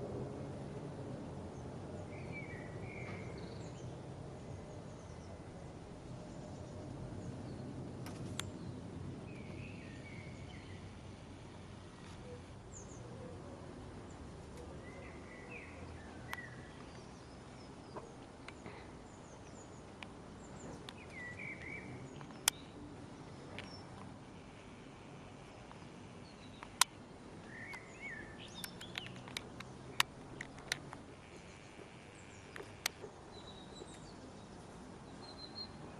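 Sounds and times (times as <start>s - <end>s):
low outdoor rumble: 0.0s - 35.9s
bird chirps: 20.4s - 22.8s, 26.2s - 29.3s, 35.1s - 35.8s
sharp clicks: 20.8s - 22.6s, 26.5s - 27.0s, 27.7s - 31.4s, 32.5s - 33.0s.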